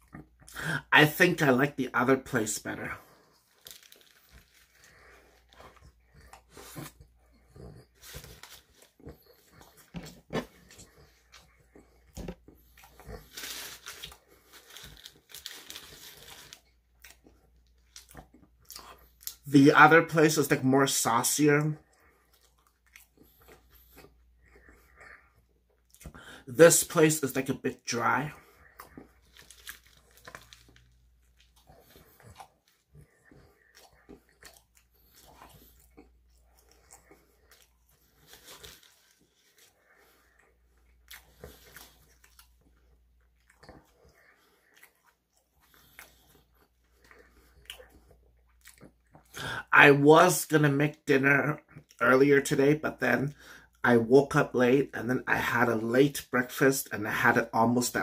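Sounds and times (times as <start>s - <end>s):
person chewing food: 0.0s - 0.6s, 2.9s - 19.5s, 21.8s - 26.5s, 28.2s - 49.5s
paper wrapper crinkling: 3.5s - 5.6s, 12.9s - 16.8s, 29.2s - 32.0s, 38.0s - 39.7s.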